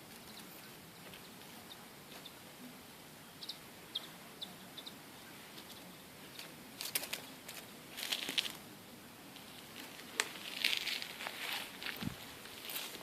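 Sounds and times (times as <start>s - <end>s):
scratching and clicking: 5.6s - 8.6s
kittens scrabbling and rustling: 6.4s - 8.6s.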